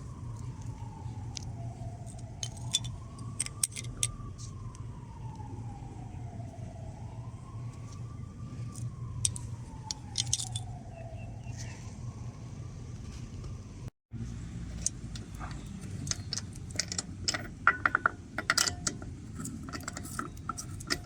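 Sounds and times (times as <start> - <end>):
siren wailing: 0.0 - 12.9, 15.2 - 21.0
steady low hum: 0.0 - 21.0
metallic clicks and jingles: 2.0 - 4.2, 8.7 - 10.7, 14.7 - 21.0.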